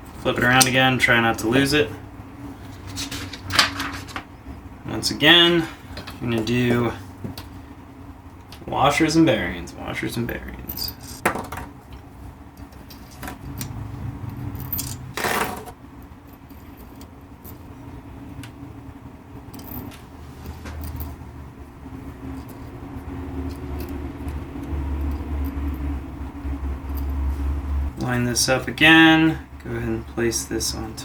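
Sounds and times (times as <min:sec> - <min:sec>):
metal washers clinking: 0:10.6 - 0:11.5, 0:12.6 - 0:17.7, 0:19.5 - 0:21.2.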